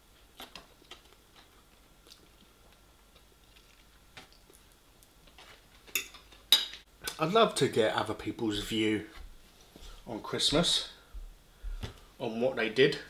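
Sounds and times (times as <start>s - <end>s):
chewing noodles: 0.3s - 6.5s.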